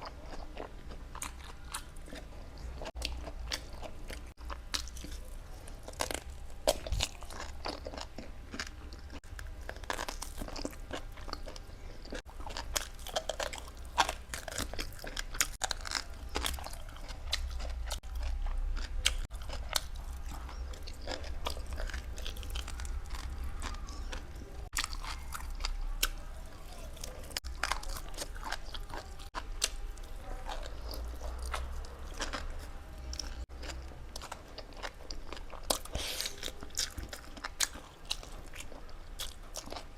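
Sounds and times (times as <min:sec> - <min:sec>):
crunching and wet chewing: 0:00.0 - 0:39.9.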